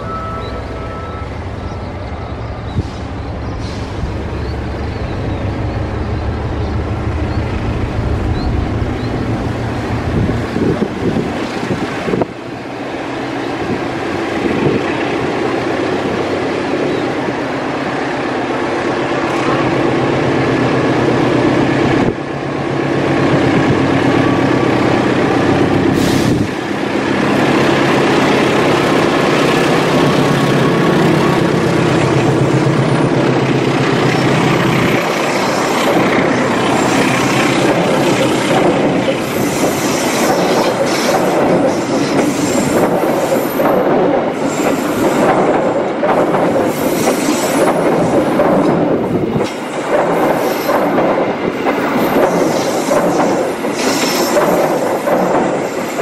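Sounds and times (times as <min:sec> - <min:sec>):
diesel locomotive engine running: 0:00.0 - 0:55.6
wheels clacking over rail joints: 0:27.2 - 0:56.0.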